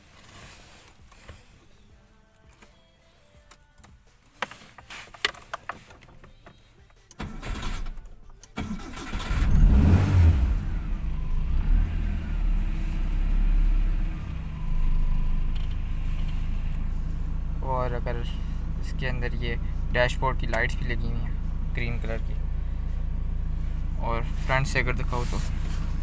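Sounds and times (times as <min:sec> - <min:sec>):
engine starter cranking: 0:07.1 - 0:12.1
car engine idling: 0:07.2 - 0:26.0.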